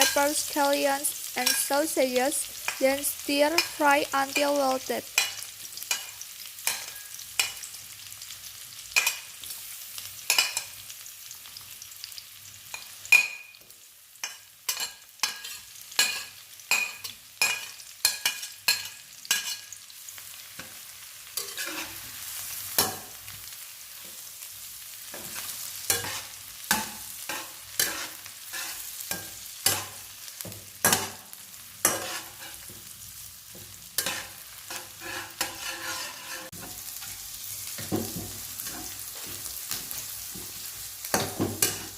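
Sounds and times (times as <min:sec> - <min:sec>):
food sizzling in hot oil: 0:00.0 - 0:41.9
spatula scraping and knocking pan: 0:21.4 - 0:22.0, 0:25.1 - 0:32.8, 0:33.5 - 0:41.9.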